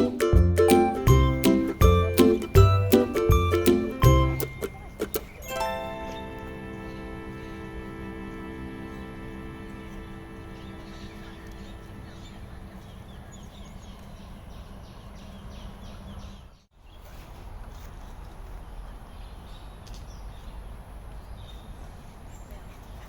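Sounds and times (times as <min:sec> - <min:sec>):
background music: 0:00.0 - 0:11.8
outdoor background noise: 0:00.0 - 0:23.0.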